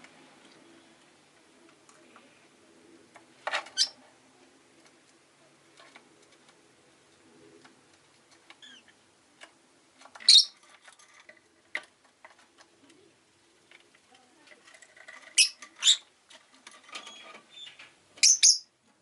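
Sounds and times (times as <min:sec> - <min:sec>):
lovebird chirping: 0:03.8 - 0:04.0, 0:10.2 - 0:10.6, 0:15.3 - 0:16.1, 0:17.0 - 0:18.7.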